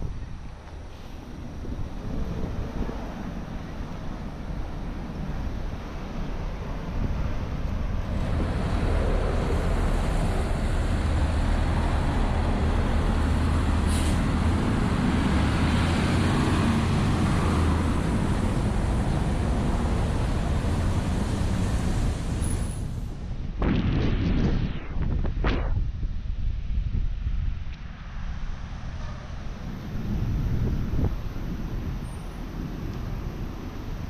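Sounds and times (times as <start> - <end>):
road traffic rumble: 0.0 - 23.6, 26.2 - 34.0
brief hiss: 0.9 - 1.3, 13.9 - 14.2.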